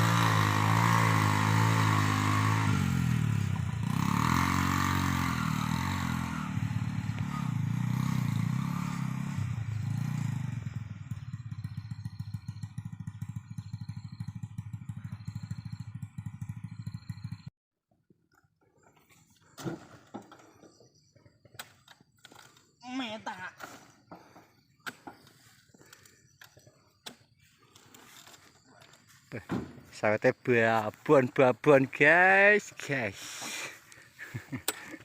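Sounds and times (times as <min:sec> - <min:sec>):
motorcycle engine: 0:00.0 - 0:17.5.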